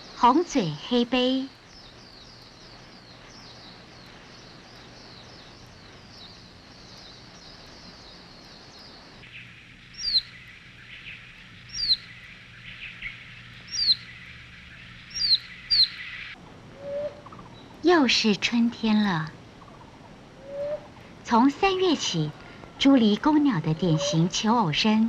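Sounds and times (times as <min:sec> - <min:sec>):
high bird chatter: 0:00.0 - 0:16.4, 0:17.2 - 0:25.0
high descending bird chirps: 0:10.0 - 0:10.3, 0:11.7 - 0:12.1, 0:13.7 - 0:14.1, 0:15.1 - 0:16.1
sharp downward-sliding bird calls: 0:11.1 - 0:12.1, 0:12.8 - 0:14.1, 0:15.1 - 0:17.5, 0:20.4 - 0:21.0.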